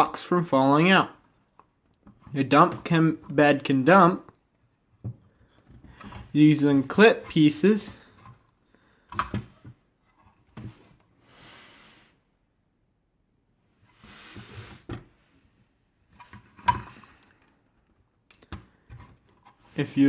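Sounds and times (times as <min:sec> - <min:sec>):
soft plastic scraping: 0:04.9 - 0:12.2, 0:13.7 - 0:20.0.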